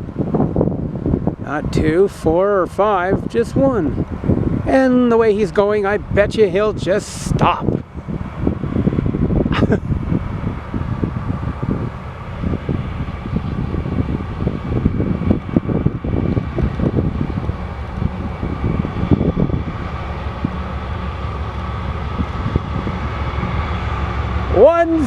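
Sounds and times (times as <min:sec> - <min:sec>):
diesel locomotive engine rumbling: 0:00.0 - 0:25.0
fan hum: 0:00.0 - 0:25.0
wind buffeting microphone: 0:00.0 - 0:25.0.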